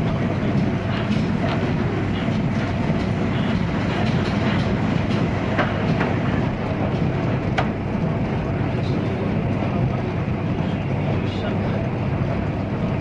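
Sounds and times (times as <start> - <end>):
train running at speed: 0.0 - 13.0.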